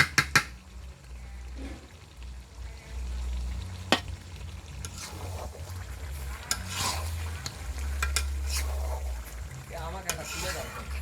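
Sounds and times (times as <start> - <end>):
food frying in a pan: 0.0 - 11.0
utensil clinking and scraping pan: 4.8 - 11.0.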